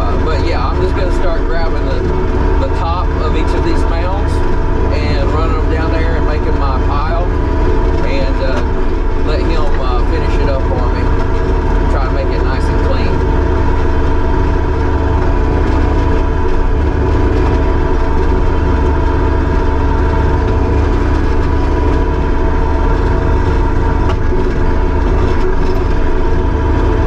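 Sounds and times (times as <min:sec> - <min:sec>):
diesel engine running steadily: 0:00.0 - 0:27.0.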